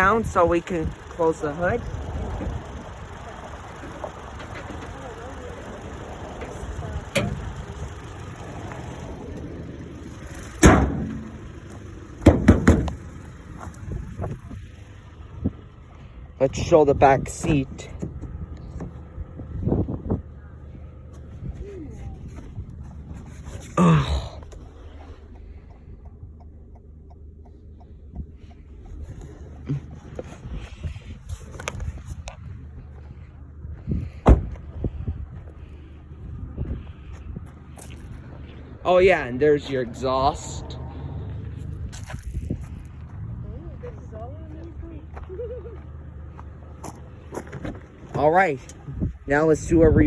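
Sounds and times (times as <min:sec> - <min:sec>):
light regular ticking: 0:00.0 - 0:16.2, 0:24.5 - 0:30.0
car engine idling: 0:00.0 - 0:50.0
car hood slamming shut: 0:10.6 - 0:11.5, 0:12.2 - 0:13.2, 0:34.2 - 0:34.6.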